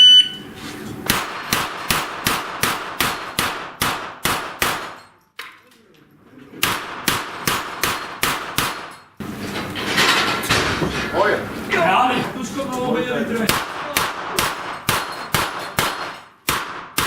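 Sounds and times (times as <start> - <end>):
gunshots hitting steel targets: 1.0 - 5.2, 6.6 - 9.2, 13.5 - 17.0.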